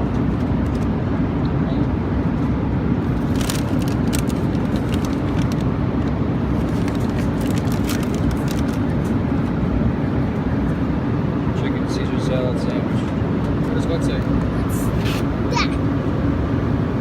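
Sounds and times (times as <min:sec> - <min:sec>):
airliner cabin rumble: 0:12.9 - 0:17.0.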